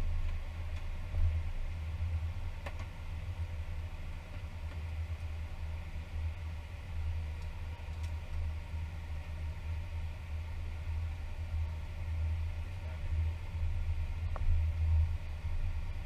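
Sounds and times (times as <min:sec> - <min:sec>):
faint hum: 0:00.0 - 0:16.0
jet engines idling low rumble: 0:00.0 - 0:16.0.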